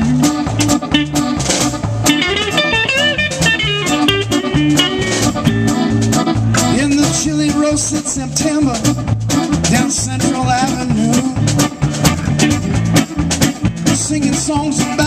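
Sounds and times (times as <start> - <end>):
melodic lead with bent notes: 0.0 - 15.0
steady drums: 0.0 - 15.0
walking bass line: 0.0 - 15.0.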